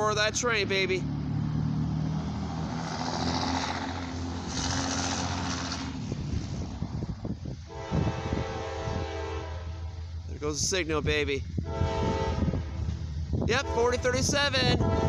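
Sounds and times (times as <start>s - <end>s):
diesel locomotive engines roaring: 0.0s - 15.0s
locomotive horn chord: 7.7s - 10.0s, 11.6s - 12.9s, 13.5s - 15.0s.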